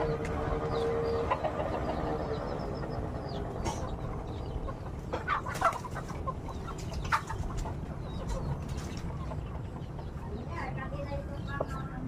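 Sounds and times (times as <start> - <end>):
low rumble: 0.0 - 5.2
chickens clucking: 0.0 - 12.0.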